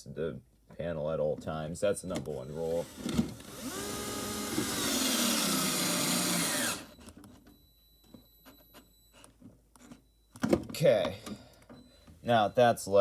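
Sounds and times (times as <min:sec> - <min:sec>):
power drill driving a screw: 0:02.5 - 0:07.0.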